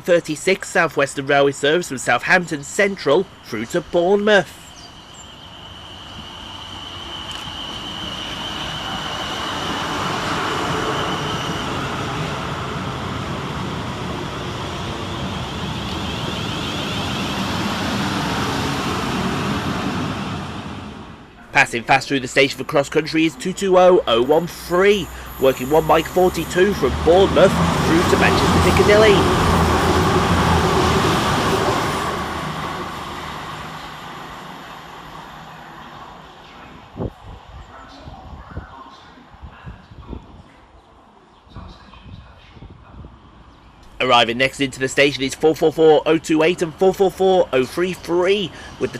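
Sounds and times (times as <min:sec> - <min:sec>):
electric train arriving: 0:00.0 - 0:37.6, 0:43.6 - 0:48.9
high whine: 0:02.4 - 0:37.2.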